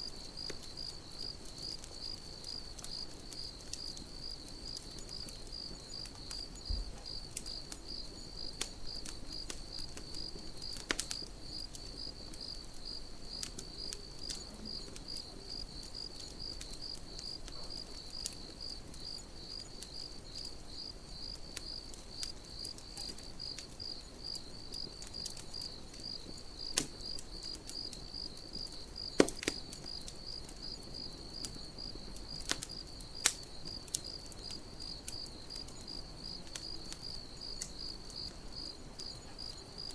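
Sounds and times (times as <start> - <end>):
campfire crackles and pops: 0.0 - 39.9
cricket chirping: 0.0 - 39.9.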